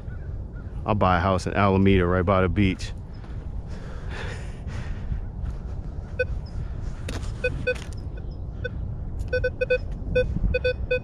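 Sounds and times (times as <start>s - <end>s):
steady low rumble: 0.0s - 11.0s
metal detector beeps: 7.4s - 8.4s, 9.2s - 11.0s.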